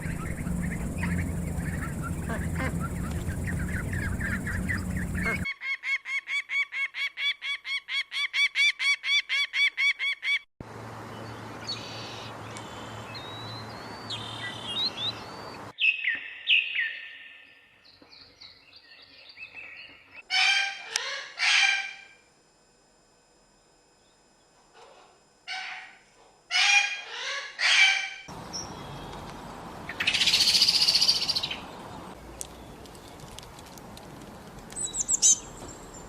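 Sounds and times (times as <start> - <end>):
thin bird chirps: 0.0 - 5.5, 28.4 - 33.5, 34.7 - 36.0
loud harsh bird calls: 0.0 - 7.8, 19.6 - 22.1, 25.5 - 29.2, 29.9 - 32.8
rapid repeated bird calls: 0.0 - 7.9, 24.8 - 33.4, 34.8 - 36.0.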